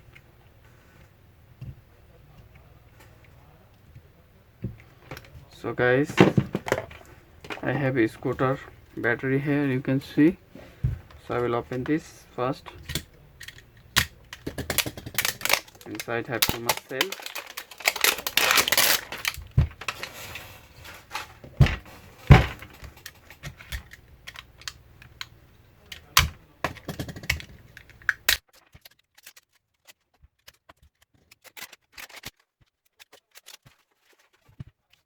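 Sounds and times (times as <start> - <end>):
clicks and knocks on battery pack: 12.7 - 20.1, 25.9 - 28.9
rustling scraping: 13.5 - 23.7.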